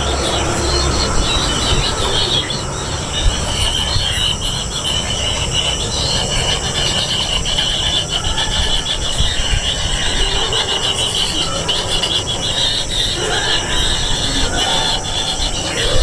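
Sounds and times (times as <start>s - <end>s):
nestlings raspy begging calls: 0.0s - 16.0s.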